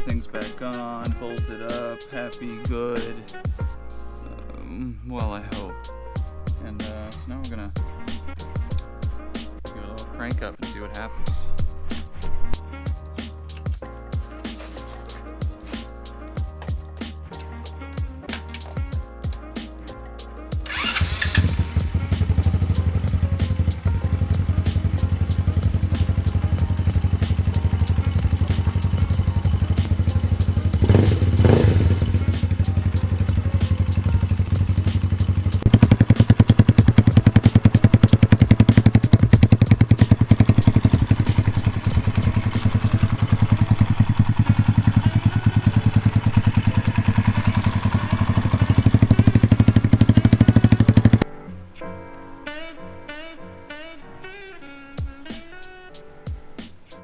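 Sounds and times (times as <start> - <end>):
motorcycle engine idling: 20.6 - 51.2.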